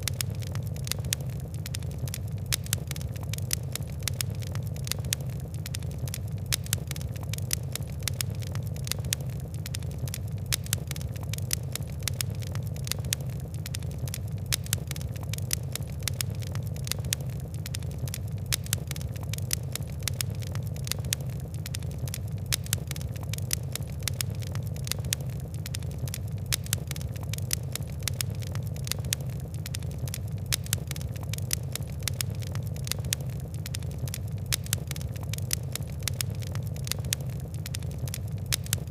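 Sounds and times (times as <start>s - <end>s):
fire crackling: 0.0s - 38.9s.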